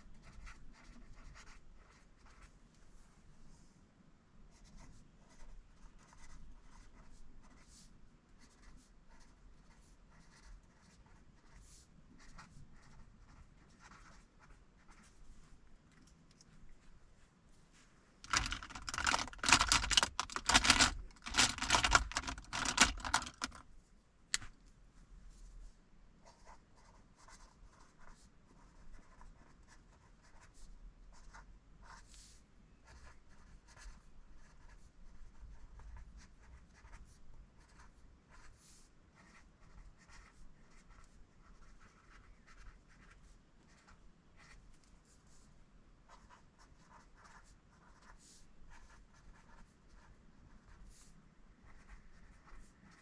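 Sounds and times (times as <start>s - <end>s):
pen writing on paper: 0.2s - 2.5s, 4.6s - 7.8s, 8.4s - 11.6s, 12.2s - 15.1s, 18.3s - 23.6s, 26.2s - 32.0s, 32.9s - 38.6s, 39.2s - 44.6s, 46.1s - 51.1s, 51.7s - 53.0s.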